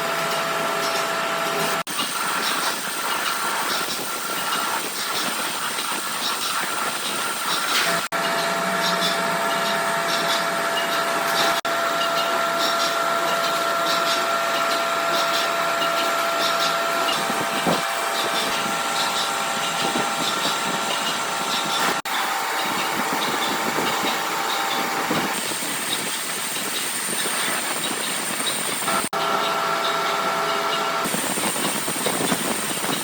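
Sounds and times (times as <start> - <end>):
workshop machinery whine: 0.0 - 33.0.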